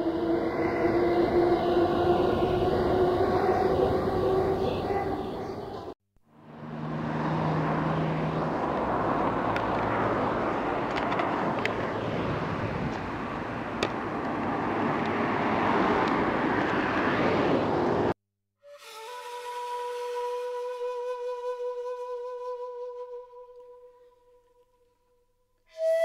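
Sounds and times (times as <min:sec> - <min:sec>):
train rumbling: 0:00.0 - 0:06.0.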